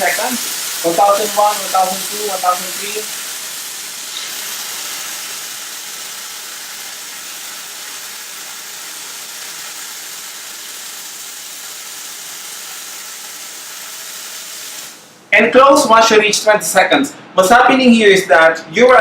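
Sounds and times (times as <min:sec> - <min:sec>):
steam wand hissing: 0:00.0 - 0:15.1.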